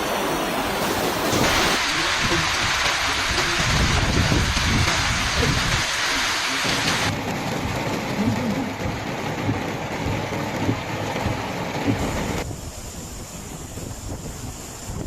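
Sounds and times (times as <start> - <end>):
heavy rain hiss: 0.0 - 15.0.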